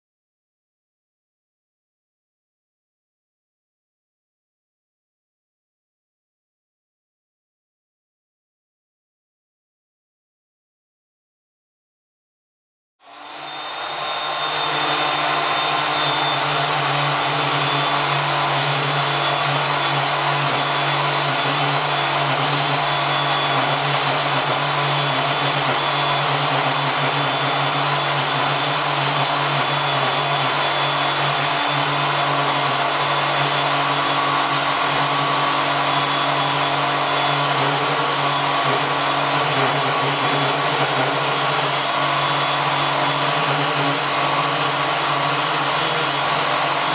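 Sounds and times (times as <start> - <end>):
powered cutting tool running: 13.0 - 46.9.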